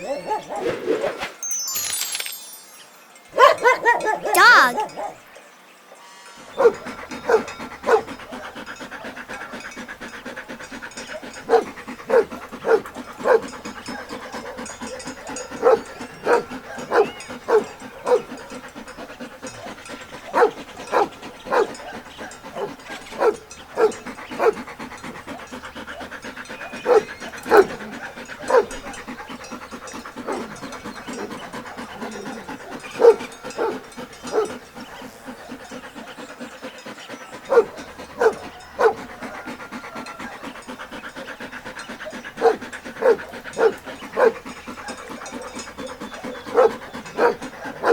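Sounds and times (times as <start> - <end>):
dog barking: 3.4 - 5.2, 6.6 - 8.0, 20.3 - 21.7, 26.9 - 28.7, 37.5 - 39.5, 42.4 - 44.4, 46.5 - 47.9.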